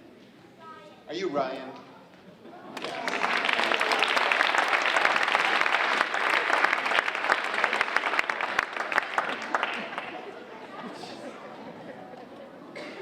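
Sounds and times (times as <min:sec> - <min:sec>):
children applauding: 0:02.7 - 0:10.5.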